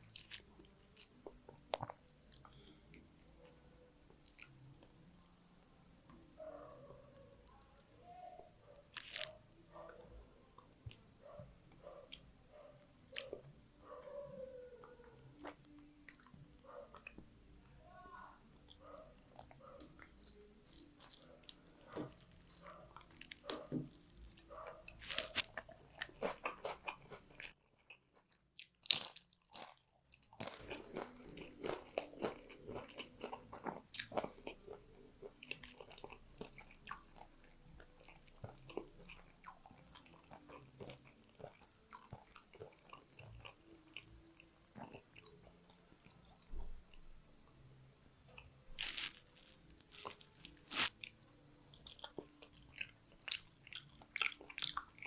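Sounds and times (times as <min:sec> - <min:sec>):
wet chewing and crunching: 0:00.0 - 0:04.9, 0:08.7 - 0:10.0, 0:13.0 - 0:13.5, 0:18.7 - 0:46.6, 0:48.4 - 0:55.0.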